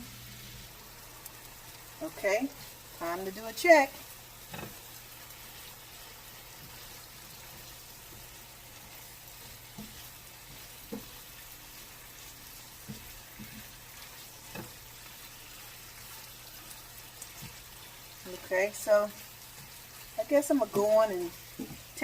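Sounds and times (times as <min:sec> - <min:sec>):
chicken sizzling in a frying pan: 0:00.0 - 0:22.0.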